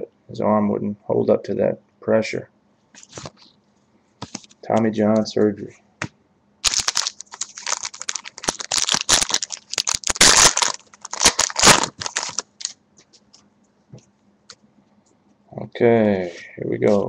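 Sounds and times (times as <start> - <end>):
wrapper tearing and crinkling: 6.6 - 12.8.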